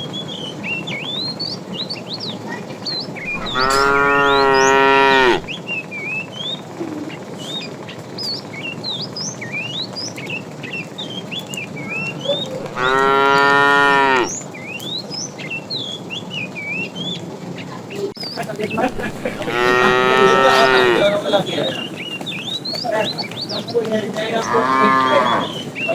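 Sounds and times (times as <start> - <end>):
cow mooing: 3.3 - 5.5, 12.6 - 14.4, 18.9 - 21.1, 24.4 - 25.6.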